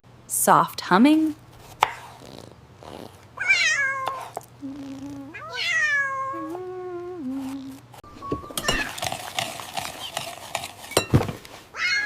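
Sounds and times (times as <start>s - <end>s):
cat meowing: 3.4s - 7.2s, 11.8s - 12.0s.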